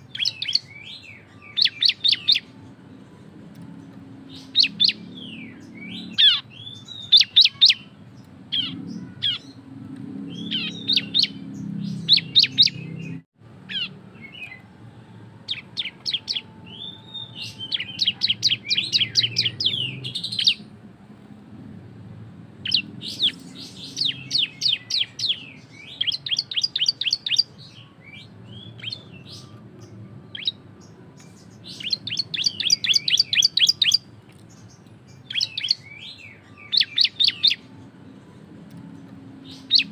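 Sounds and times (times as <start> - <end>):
bird singing rattling trills: 0.0 - 2.6, 4.1 - 9.6, 10.3 - 14.6, 15.5 - 20.7, 22.6 - 37.7, 39.4 - 39.9.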